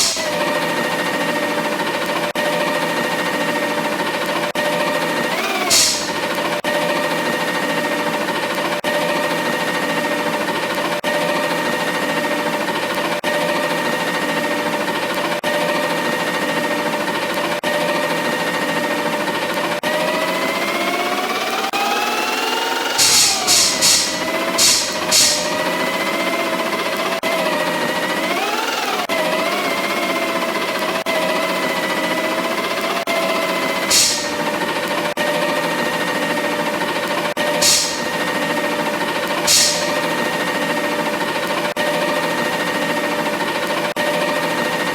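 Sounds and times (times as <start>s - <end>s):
hissing air burst: 0.0s - 0.4s, 5.7s - 6.3s, 23.0s - 25.6s, 33.9s - 34.6s, 37.6s - 38.2s, 39.5s - 40.1s
machine rattling and humming: 0.0s - 8.6s, 22.4s - 26.0s, 33.6s - 44.9s
garbage truck mechanical whine: 0.0s - 44.9s.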